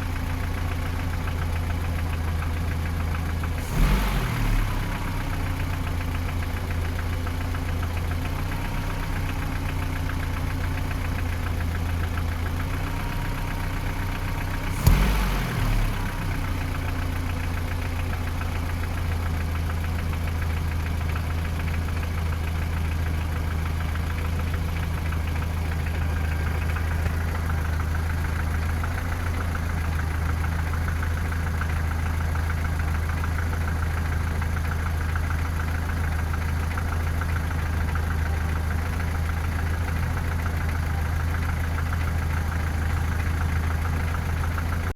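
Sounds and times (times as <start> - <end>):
car engine idling: 0.0 - 44.9
engine knocking: 0.0 - 44.9
engine revving: 3.6 - 5.8, 14.6 - 17.1.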